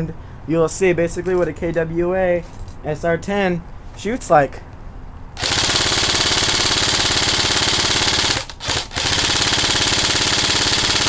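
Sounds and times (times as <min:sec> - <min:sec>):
airsoft gun firing full auto: 0:05.4 - 0:11.0.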